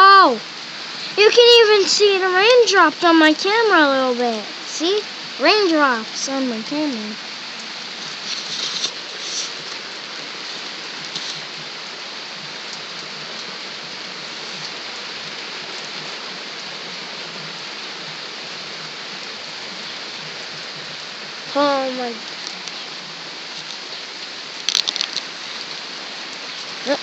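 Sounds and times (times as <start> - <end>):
rain splashing on surfaces: 0.0 - 27.0
raindrops tapping on camera: 1.0 - 27.0.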